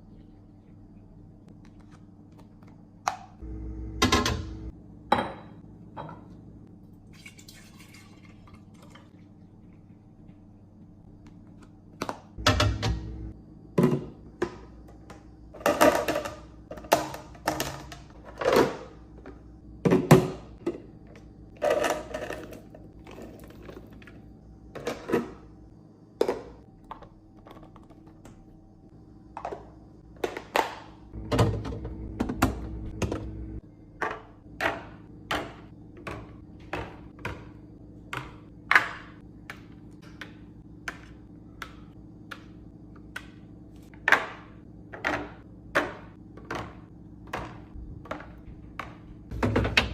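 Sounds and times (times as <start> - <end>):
faint steady hum: 0.0 - 49.9
containers set down on fridge shelves: 29.4 - 33.3, 44.0 - 49.9.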